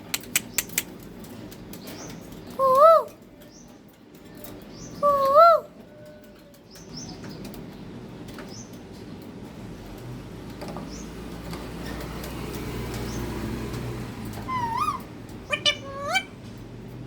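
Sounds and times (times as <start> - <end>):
parrot whistling: 14.5 - 16.3.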